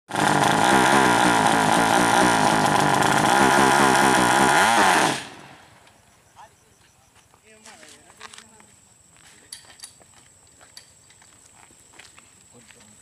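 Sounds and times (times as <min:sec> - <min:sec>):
motorcycle engine revving hard: 0:00.1 - 0:05.6.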